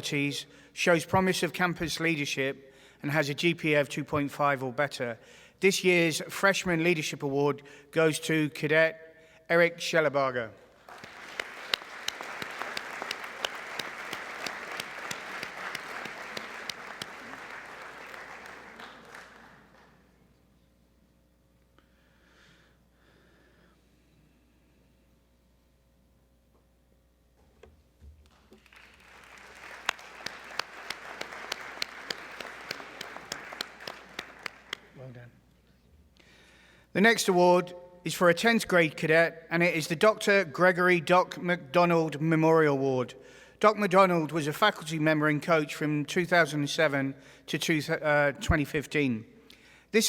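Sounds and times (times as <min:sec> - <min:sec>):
audience applauding: 0:10.8 - 0:20.0, 0:28.3 - 0:35.1
single sharp claps: 0:10.9 - 0:19.9.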